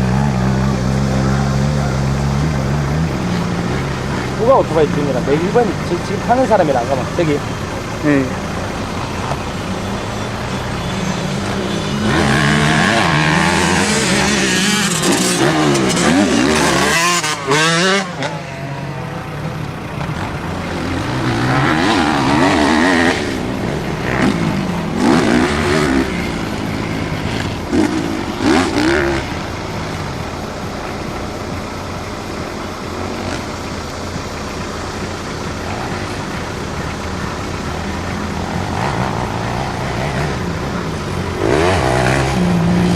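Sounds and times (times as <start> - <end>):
dirt bike engines revving: 0.0 - 42.9.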